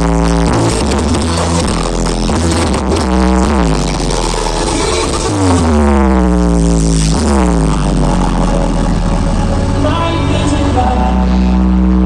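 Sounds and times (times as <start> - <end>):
electronic dance music: 0.0 - 12.0
heavy bass: 0.0 - 12.0
synth tone gliding down: 4.2 - 12.0.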